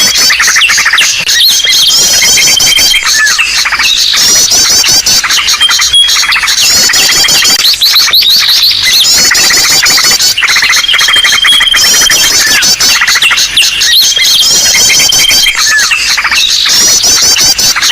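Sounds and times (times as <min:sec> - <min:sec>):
small birds chirping and trilling: 0:00.0 - 0:17.9.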